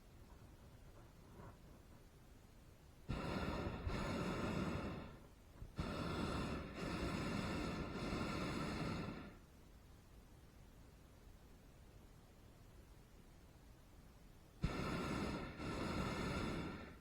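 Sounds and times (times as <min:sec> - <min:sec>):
propane burner blasts: 0:03.1 - 0:09.4, 0:14.6 - 0:17.0.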